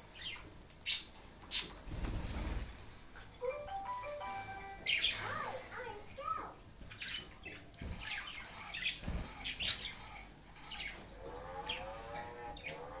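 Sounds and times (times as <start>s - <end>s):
budgies chirping and squawking: 0.1s - 2.2s, 4.8s - 13.0s.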